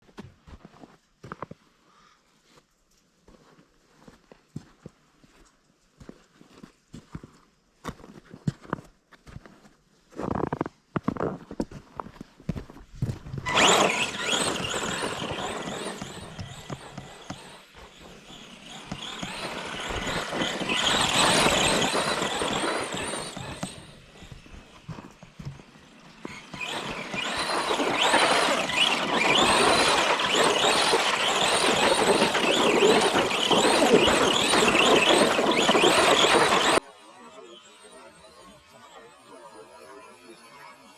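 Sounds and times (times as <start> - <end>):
rc truck electric motor whining: 13.4 - 40.9.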